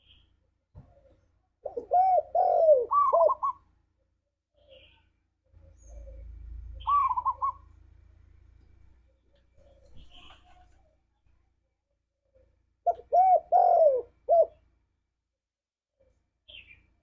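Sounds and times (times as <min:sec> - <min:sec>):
faint low hum: 0:00.0 - 0:15.2
dove cooing: 0:00.9 - 0:03.7, 0:05.6 - 0:07.7, 0:12.8 - 0:14.7.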